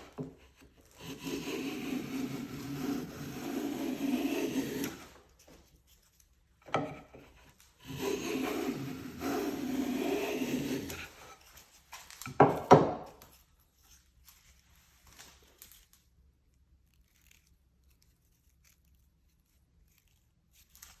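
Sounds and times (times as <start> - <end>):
edge tool shaving wood: 0.0 - 13.4.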